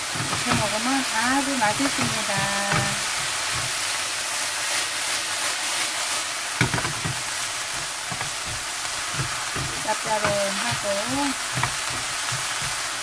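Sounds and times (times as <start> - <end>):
food sizzling in a frying pan: 0.0 - 13.0
spatula knocking against a pan: 6.6 - 13.0.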